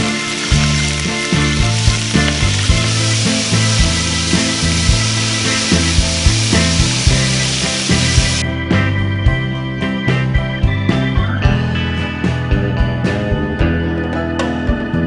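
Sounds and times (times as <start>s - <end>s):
chicken sizzling in hot oil: 0.0s - 8.4s
background music with steady beat: 0.0s - 15.0s.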